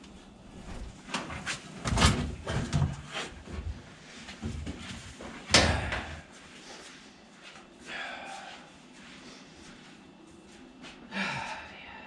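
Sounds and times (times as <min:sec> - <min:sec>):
knocks and clatter of handling: 0:00.7 - 0:06.2.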